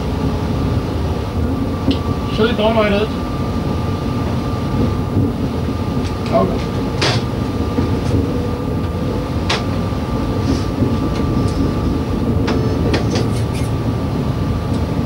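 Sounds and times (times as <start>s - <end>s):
diesel train rumbling with whine: 0.0s - 15.0s.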